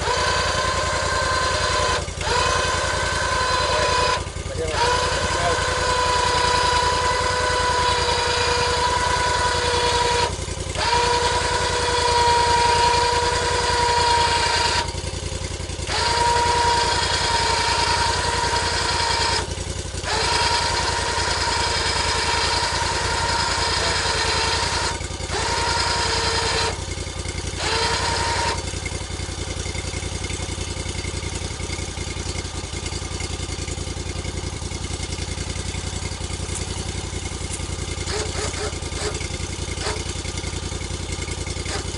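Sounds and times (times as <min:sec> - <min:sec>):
high whine: 0:00.0 - 0:15.1
machinery engine running: 0:00.0 - 0:41.9.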